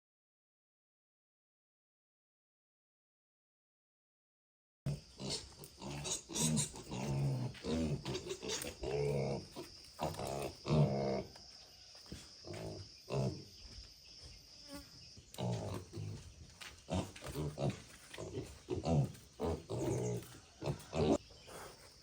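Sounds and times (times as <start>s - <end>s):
pigs grunting: 4.9s - 11.5s, 12.4s - 13.6s, 15.3s - 22.0s.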